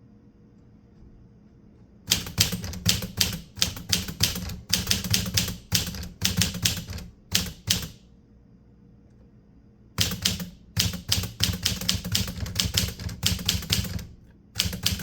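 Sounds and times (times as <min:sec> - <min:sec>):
typewriter keystrokes: 0:02.1 - 0:08.0, 0:10.0 - 0:15.0.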